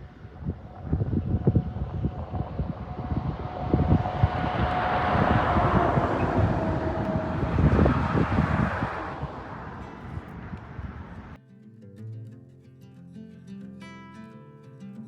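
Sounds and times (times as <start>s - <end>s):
vehicle rushing past: 0.0s - 11.4s
wind buffeting microphone: 0.0s - 11.4s.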